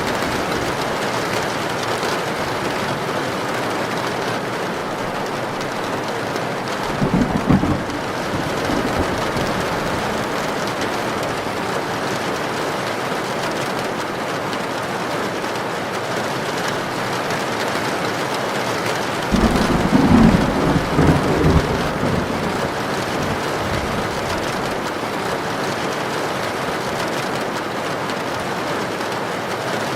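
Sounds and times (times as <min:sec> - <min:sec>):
thunder rumbling: 0:00.0 - 0:02.8, 0:06.6 - 0:11.7, 0:19.2 - 0:25.0
heavy rain falling: 0:00.0 - 0:29.9.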